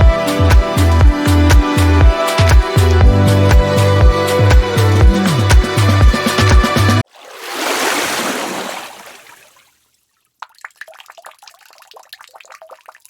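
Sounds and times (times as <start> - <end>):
background music: 0.0 - 7.0
rush of water: 4.5 - 9.8
water dripping and trickling: 7.0 - 13.0.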